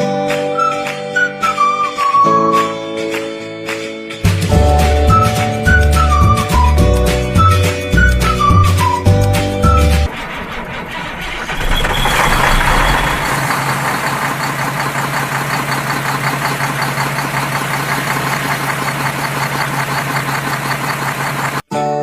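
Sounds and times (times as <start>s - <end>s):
vehicle engine starting and idling: 9.1s - 21.6s.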